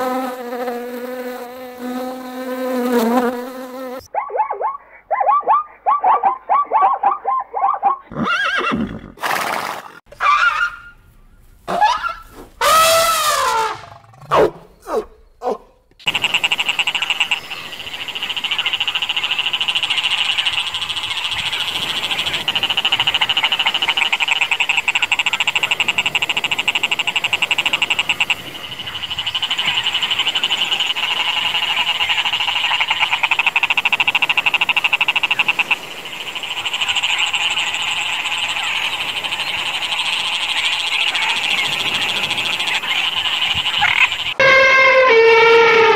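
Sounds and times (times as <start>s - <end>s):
frogs croaking in chorus: 16.0s - 44.6s.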